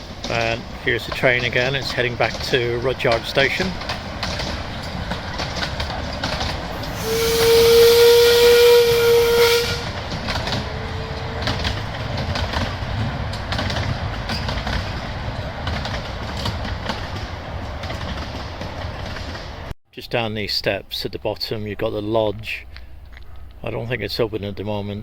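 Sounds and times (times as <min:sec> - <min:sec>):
train running rumble: 0:00.0 - 0:19.7
steam hissing: 0:06.7 - 0:10.1
steam locomotive whistle: 0:06.8 - 0:11.5.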